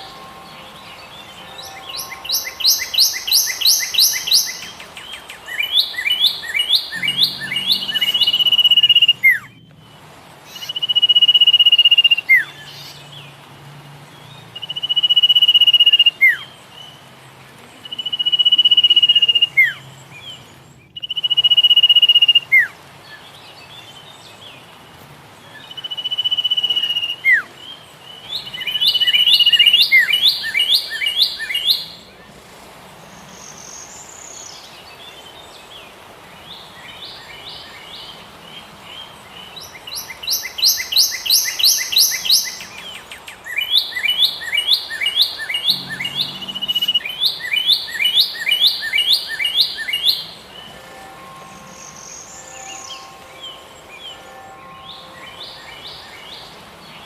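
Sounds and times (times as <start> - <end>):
rising chirps: 0.0 - 9.7
bird buzzy trill song: 0.0 - 57.0
songbirds singing: 0.0 - 57.0.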